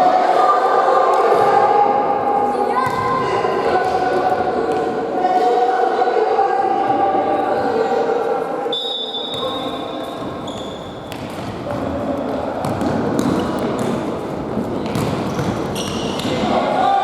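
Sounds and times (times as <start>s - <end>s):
voices in sports hall: 0.0s - 17.0s
ball kicked and bouncing: 11.1s - 12.0s, 12.6s - 16.3s.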